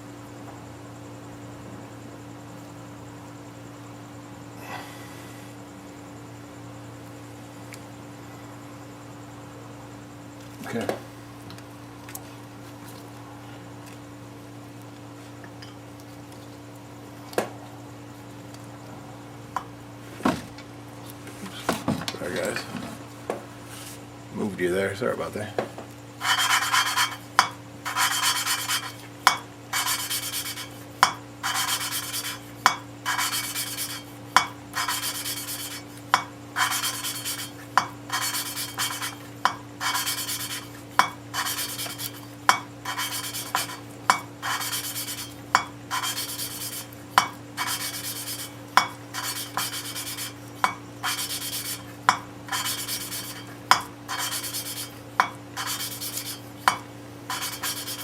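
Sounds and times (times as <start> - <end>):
valve scraping rasp: 26.2 - 58.0.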